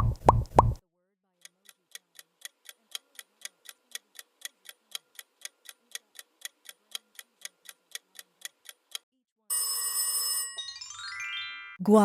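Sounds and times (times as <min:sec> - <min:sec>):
countdown timer ticking: 0:00.0 - 0:00.8.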